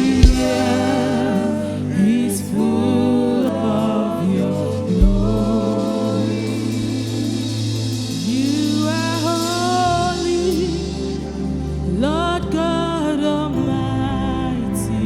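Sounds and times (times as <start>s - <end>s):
band with steady bass: 0.0s - 13.2s
voices singing held notes: 0.0s - 15.0s
bass drum thump: 0.2s - 0.6s, 5.0s - 5.6s.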